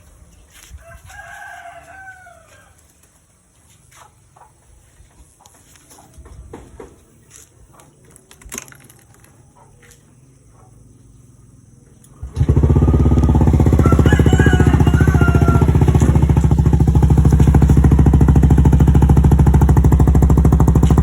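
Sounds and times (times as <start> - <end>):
rooster crowing: 0.8 - 2.8, 12.4 - 17.6.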